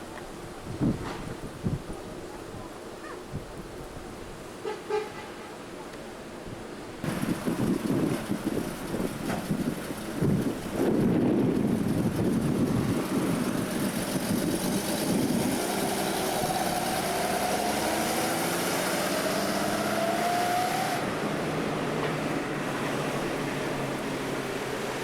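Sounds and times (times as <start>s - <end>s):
car engine running: 7.0s - 18.0s
engine whine rising: 7.1s - 25.0s.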